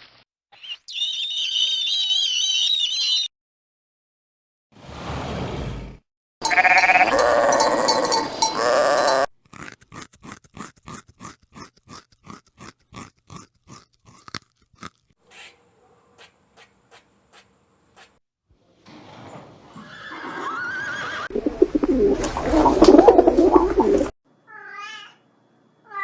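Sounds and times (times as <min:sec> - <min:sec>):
breathy noise: 0:06.4 - 0:09.3
sheep bleating: 0:06.4 - 0:09.3.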